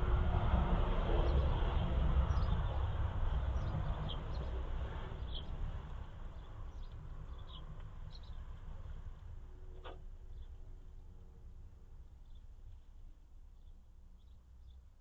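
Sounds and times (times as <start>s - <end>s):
low rumble: 0.0s - 9.7s.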